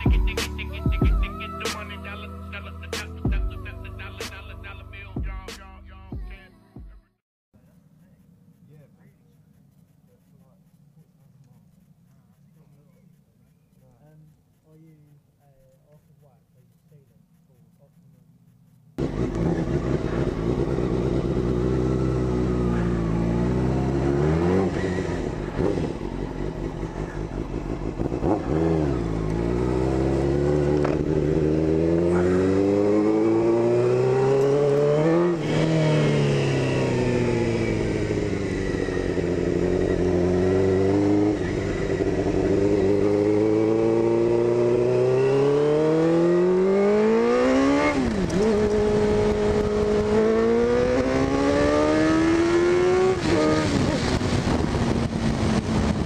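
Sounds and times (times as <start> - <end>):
motorcycle engine revving: 19.0 - 56.0.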